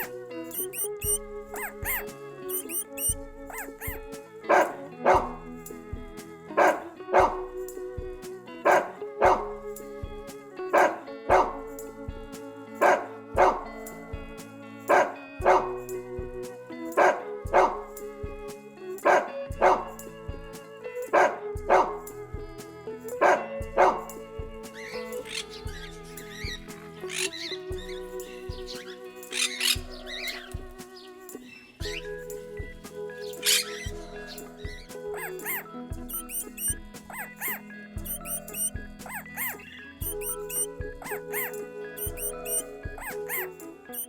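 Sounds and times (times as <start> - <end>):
dog barking: 0.0 - 5.3, 6.6 - 7.4, 8.6 - 9.5, 10.7 - 11.6, 12.8 - 13.6, 14.9 - 15.7, 17.0 - 17.8, 19.0 - 19.9, 21.1 - 22.0, 23.2 - 24.2, 33.4 - 44.0
background music: 0.0 - 44.0.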